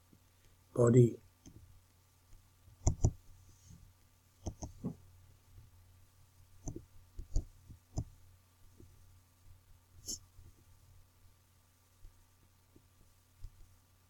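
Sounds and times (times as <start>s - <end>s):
faint steady hum: 0.0s - 14.0s
computer mouse clicks: 2.8s - 3.2s, 4.4s - 4.8s, 6.6s - 8.1s.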